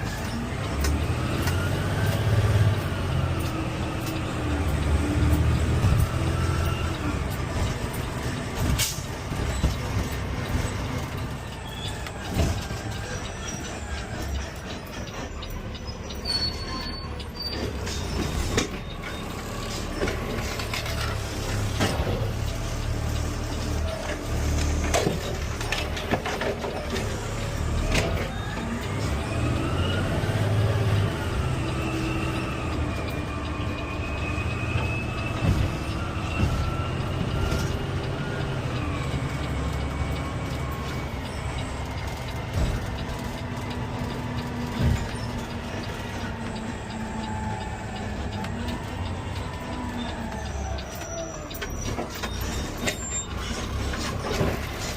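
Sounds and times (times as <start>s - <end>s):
garbage truck running: 0.0s - 54.9s
knocks and clanks: 34.7s - 38.0s, 40.0s - 46.6s.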